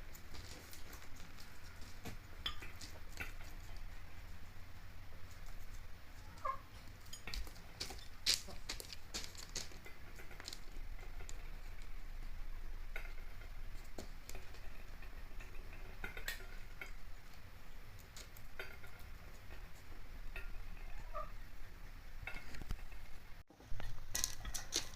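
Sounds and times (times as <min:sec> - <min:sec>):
steady low hum: 0:00.0 - 0:24.9
hen clucking: 0:06.2 - 0:06.8, 0:20.6 - 0:22.0.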